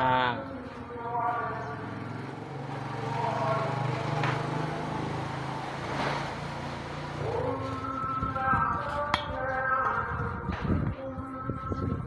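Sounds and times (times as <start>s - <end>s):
low engine hum: 0.0s - 9.1s.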